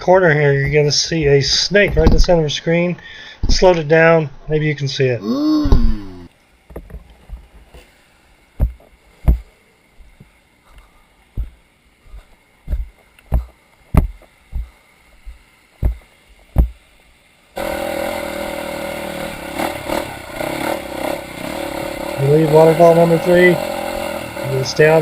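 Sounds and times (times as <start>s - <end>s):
dirt bike engine running: 8.6s - 16.8s, 17.6s - 25.0s
footsteps on rocky ground: 11.3s - 16.0s.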